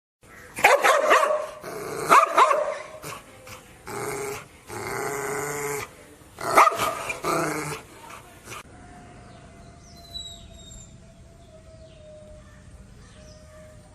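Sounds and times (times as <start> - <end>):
dog barking: 0.6 - 3.0, 6.5 - 7.2
dog growling: 1.6 - 2.2, 3.0 - 8.7.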